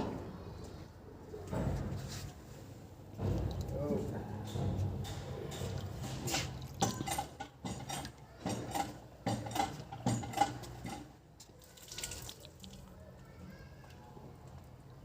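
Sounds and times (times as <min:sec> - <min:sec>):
metal objects clinking: 0:05.0 - 0:11.2.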